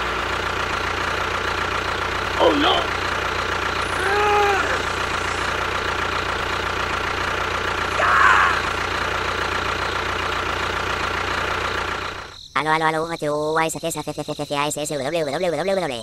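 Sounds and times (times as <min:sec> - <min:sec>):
brief voice-like calls: 0:03.8 - 0:05.5.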